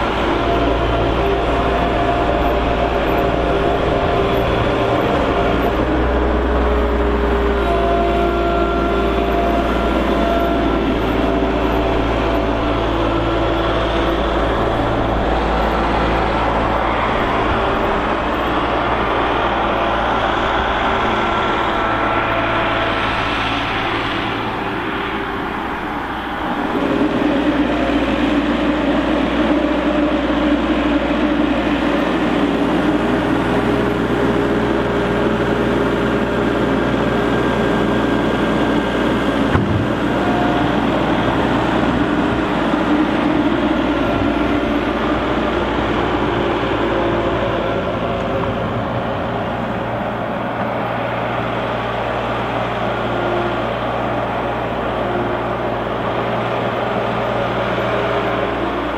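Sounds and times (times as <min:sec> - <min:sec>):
heavy diesel engine running: 0:00.0 - 0:58.9
sharp knock: 0:39.5 - 0:40.2.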